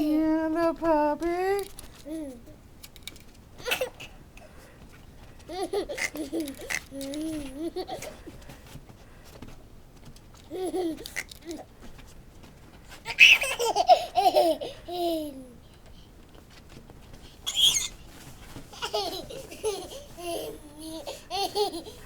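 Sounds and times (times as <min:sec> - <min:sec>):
baby laughing and squealing: 0:05.5 - 0:08.2, 0:13.1 - 0:15.4, 0:17.5 - 0:18.0.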